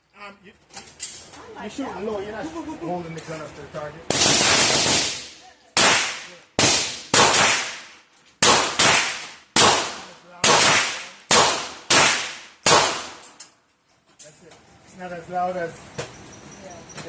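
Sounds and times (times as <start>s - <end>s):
handgun shots echoing: 4.1s - 13.4s.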